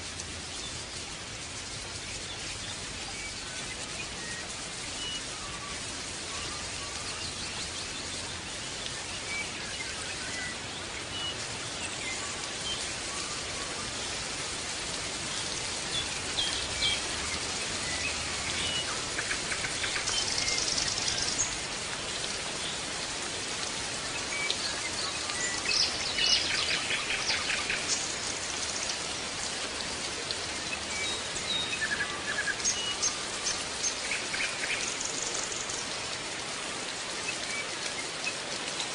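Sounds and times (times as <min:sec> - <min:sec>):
steady hiss: 0:00.0 - 0:38.9
small birds chirping and trilling: 0:15.2 - 0:38.6.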